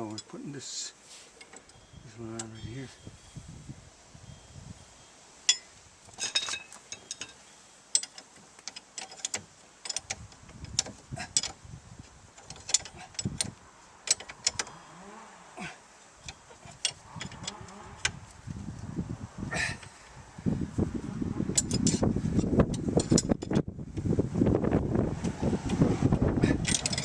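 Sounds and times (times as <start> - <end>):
metal tools clinking and knocking: 1.4 - 2.9, 5.5 - 11.6, 12.4 - 14.7, 16.2 - 17.6, 21.6 - 23.6, 26.5 - 27.0.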